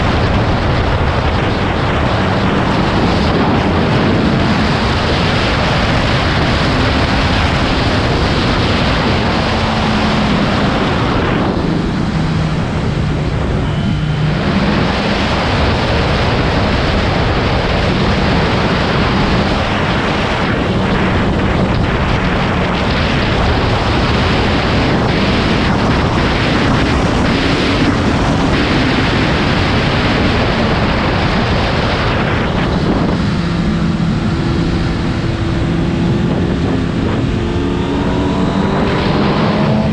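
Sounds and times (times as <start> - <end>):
motorcycle engine: 0.0 - 39.9
wind rush over microphone: 0.0 - 39.9.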